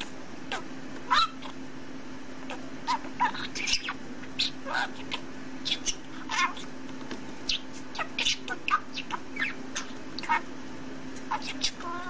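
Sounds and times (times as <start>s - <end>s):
steady low hum: 0.0s - 12.0s
lovebird chirping: 2.5s - 6.7s, 7.4s - 10.5s, 11.3s - 12.0s.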